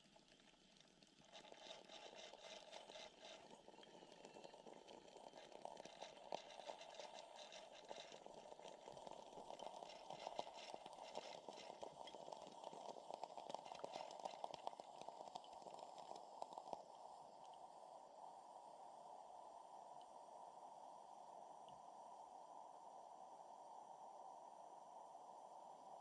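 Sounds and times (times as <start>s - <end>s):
water boiling and sputtering: 0.0s - 18.0s.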